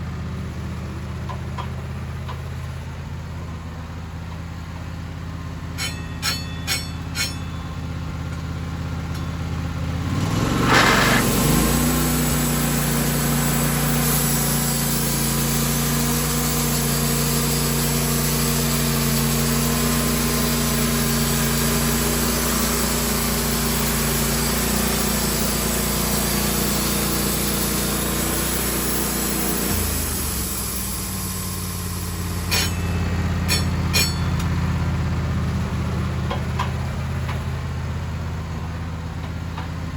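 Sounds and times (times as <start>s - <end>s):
sawmill engine running: 0.0s - 39.9s
saw cutting through log: 10.2s - 34.4s.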